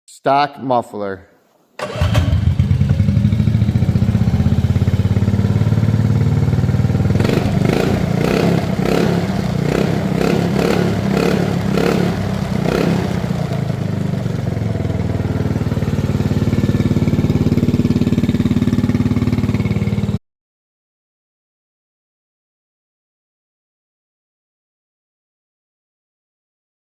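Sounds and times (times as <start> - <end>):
engine throttle blips: 1.8 - 20.2
engine exhaust idling: 2.3 - 20.2.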